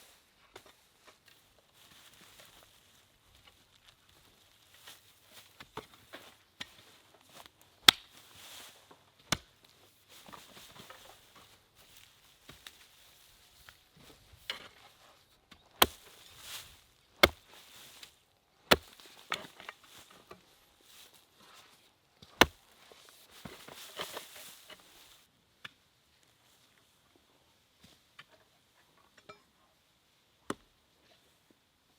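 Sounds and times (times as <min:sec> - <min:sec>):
rustling: 0:10.0 - 0:25.3
sharp chopping strikes: 0:15.8 - 0:16.1, 0:17.2 - 0:17.4, 0:18.7 - 0:19.0.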